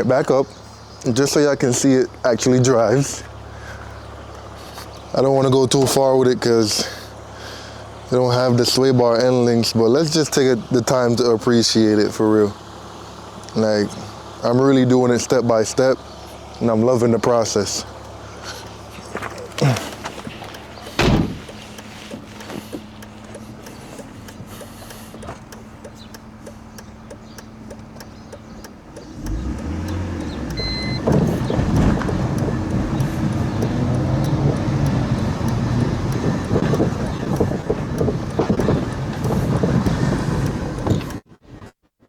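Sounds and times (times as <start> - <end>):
car engine idling: 0.0 - 41.3
car driving away: 0.5 - 41.2
short beep: 30.6 - 31.1.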